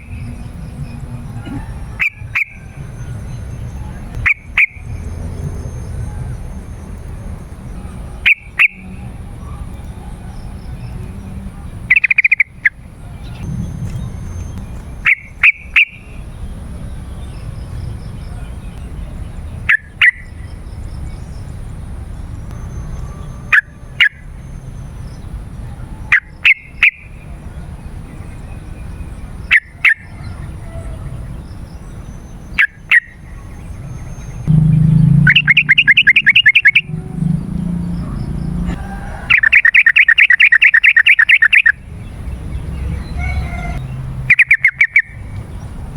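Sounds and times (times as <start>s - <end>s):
bird calls: 0.0s - 21.7s, 22.3s - 45.9s
low background rumble: 12.5s - 19.7s, 33.2s - 39.3s
loud rattling bird trills: 32.5s - 41.8s.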